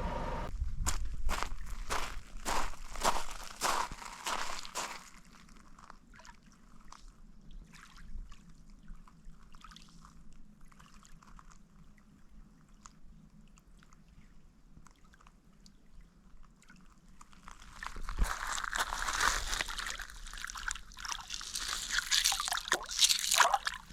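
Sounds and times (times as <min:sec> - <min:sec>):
water trickling and dripping: 0:14.8 - 0:23.9.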